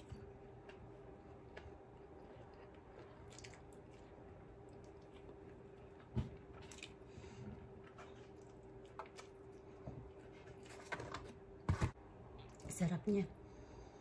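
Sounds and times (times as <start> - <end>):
person chewing: 0.0 - 7.1
faint steady hum: 0.0 - 14.0.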